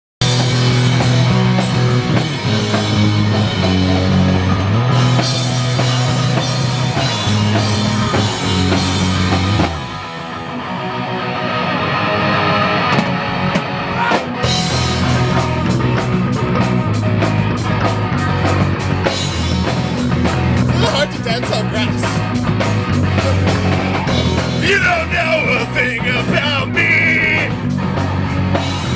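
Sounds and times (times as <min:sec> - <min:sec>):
drum kit: 0:00.2 - 0:11.3, 0:12.0 - 0:28.9
bass guitar: 0:00.2 - 0:28.9
electric guitar: 0:00.2 - 0:28.9.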